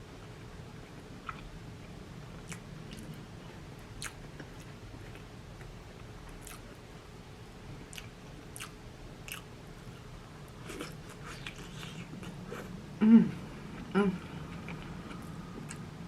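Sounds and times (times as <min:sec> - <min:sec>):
faint low hum: 0:00.0 - 0:16.0
mouth chewing and smacking: 0:00.2 - 0:05.7, 0:06.3 - 0:06.8, 0:07.9 - 0:09.5, 0:10.5 - 0:12.7, 0:14.4 - 0:15.9.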